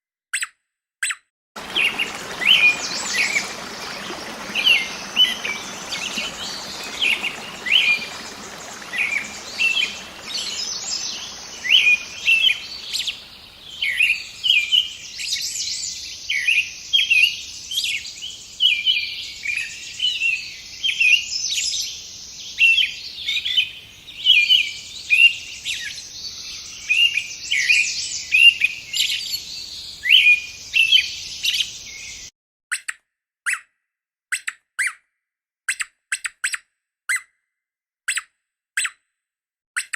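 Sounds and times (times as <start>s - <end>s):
background hiss: 1.6s - 18.7s
birds chirping: 1.6s - 32.3s.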